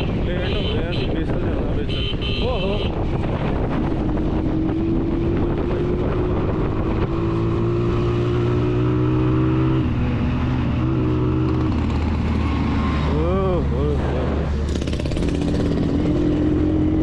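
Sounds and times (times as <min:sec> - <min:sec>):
motorcycle engine running: 0:08.6 - 0:13.6, 0:14.6 - 0:17.0.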